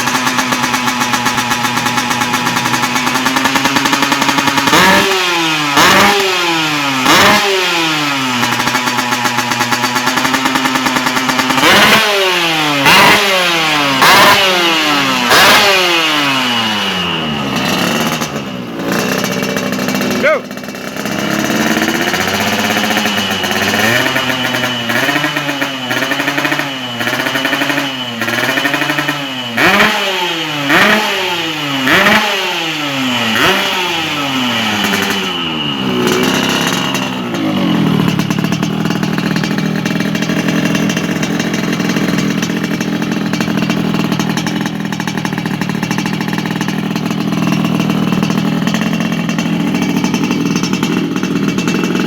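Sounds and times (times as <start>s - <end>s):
two-stroke motorcycle engine revving: 0.0s - 52.0s.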